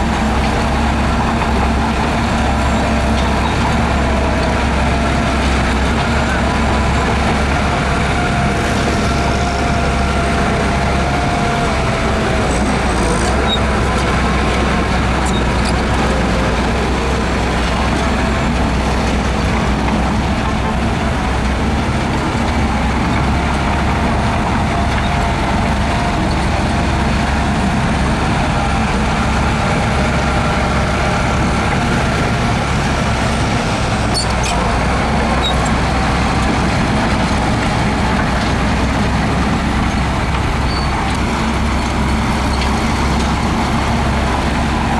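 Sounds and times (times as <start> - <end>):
heavy diesel machinery drone: 0.0 - 44.9.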